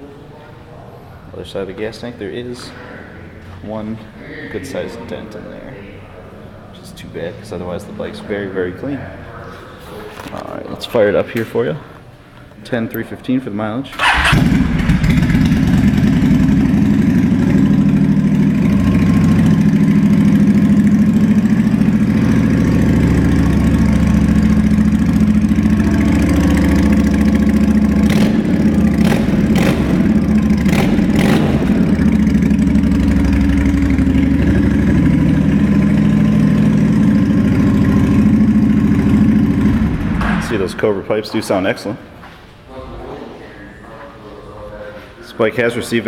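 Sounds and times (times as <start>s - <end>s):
motorcycle engine running: 14.0s - 40.8s.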